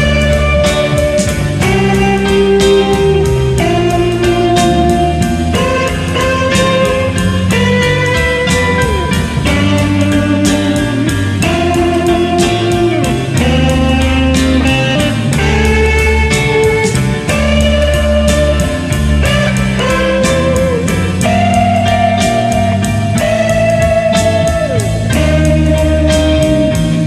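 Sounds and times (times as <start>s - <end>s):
bass guitar: 0.0s - 27.0s
drums: 0.0s - 27.0s
electric lead guitar bending notes: 0.0s - 27.0s.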